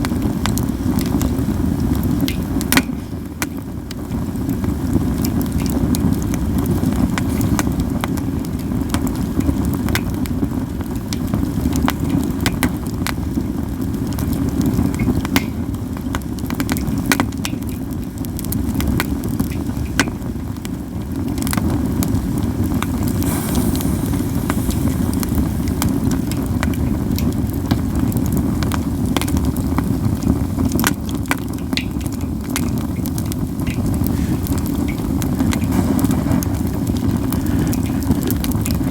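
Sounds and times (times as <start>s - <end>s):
wood fire crackling and popping: 0.0s - 38.9s
low rumble: 33.9s - 38.9s.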